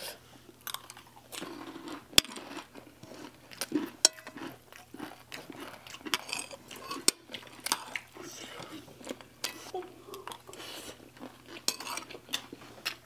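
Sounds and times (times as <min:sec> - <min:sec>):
people chewing crunchy snack: 0:00.5 - 0:13.0
spoons clinking on plates: 0:11.7 - 0:12.1.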